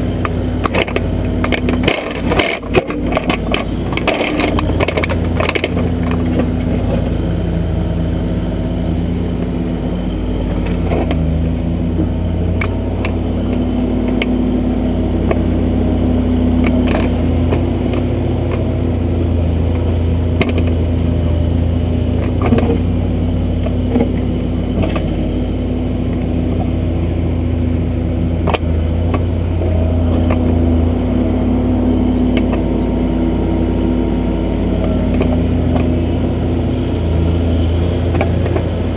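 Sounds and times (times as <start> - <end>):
backhoe diesel engine running: 0.0 - 38.9
clicks and knocks from digger arm: 0.2 - 7.0.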